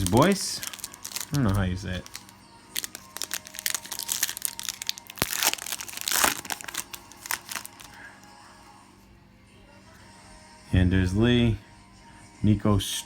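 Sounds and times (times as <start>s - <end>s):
trading cards crinkling and rustling: 0.0s - 8.0s.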